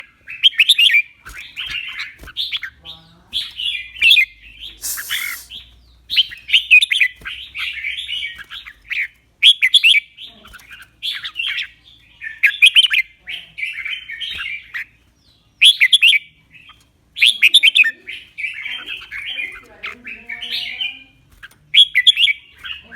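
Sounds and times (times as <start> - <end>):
bird singing warbled phrases: 0.0 - 22.9
brief hiss: 4.8 - 5.6.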